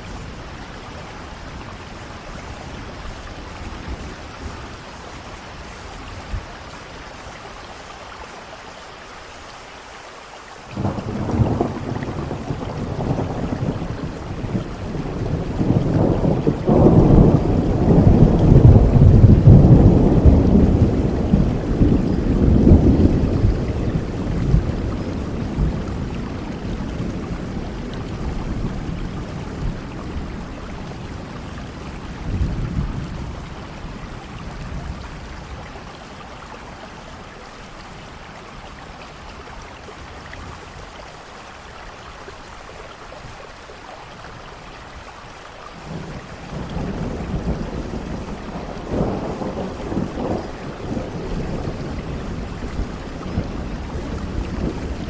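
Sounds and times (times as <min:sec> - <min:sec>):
steady rainfall: 0:00.0 - 0:55.0
thunder rolling: 0:10.8 - 0:30.6, 0:45.9 - 0:55.0.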